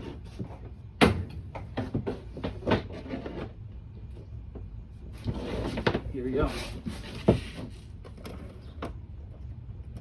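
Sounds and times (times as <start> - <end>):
air conditioner knocks and rattles: 0.0 - 3.6
steady low hum: 0.0 - 10.0.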